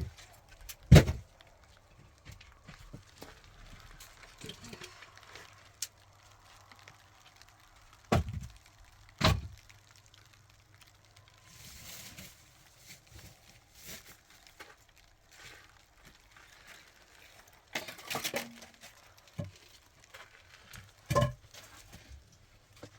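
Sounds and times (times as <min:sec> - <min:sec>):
rustling and scraping: 0:11.3 - 0:22.9.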